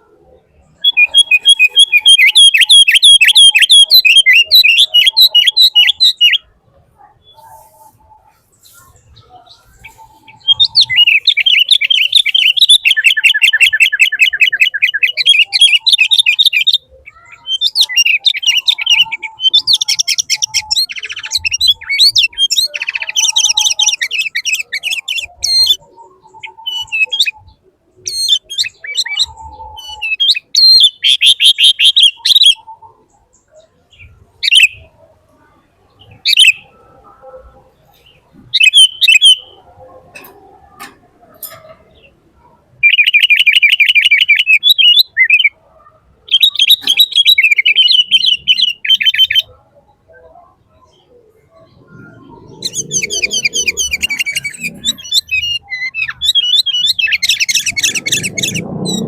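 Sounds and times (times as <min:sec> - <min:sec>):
bird trilling and chirping: 0:00.3 - 0:35.0, 0:35.9 - 0:59.0.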